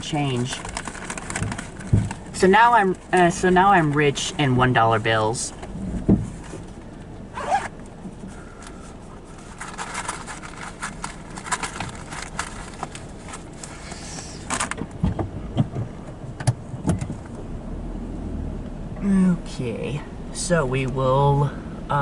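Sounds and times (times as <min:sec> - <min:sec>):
paper rustling: 0:00.0 - 0:03.2, 0:08.6 - 0:14.7
zipper-like scraping and clicking: 0:07.4 - 0:07.8.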